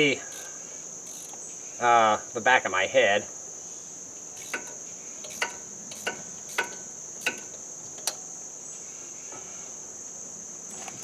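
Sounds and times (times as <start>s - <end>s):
insect chirring: 0.0s - 2.5s, 3.4s - 8.8s, 10.6s - 11.0s
metallic clicks of hand tools: 0.3s - 0.5s, 1.1s - 1.4s, 4.4s - 8.2s.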